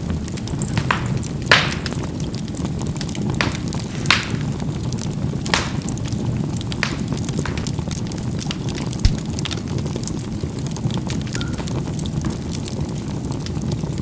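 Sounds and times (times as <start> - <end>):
charcoal popping and crackling: 0.0 - 14.0
low rumble of flame: 0.0 - 14.0.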